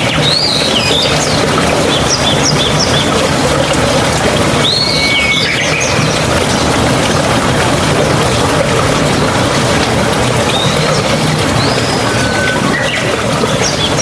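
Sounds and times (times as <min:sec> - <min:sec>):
rush of running water: 0:00.0 - 0:14.0
songbirds calling: 0:00.0 - 0:14.0.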